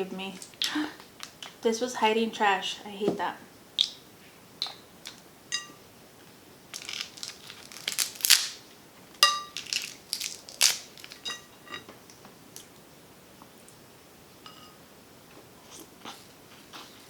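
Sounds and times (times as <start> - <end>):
crab shells cracking by hand: 6.7 - 8.6, 9.5 - 11.3.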